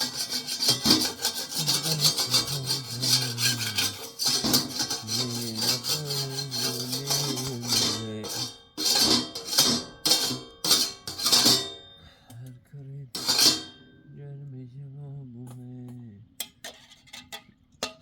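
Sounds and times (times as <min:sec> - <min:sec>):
rasping scraping strokes: 0:00.0 - 0:11.6, 0:13.2 - 0:13.8
low voice humming a tune: 0:01.5 - 0:04.0, 0:05.0 - 0:08.4, 0:12.3 - 0:13.2, 0:14.2 - 0:16.3.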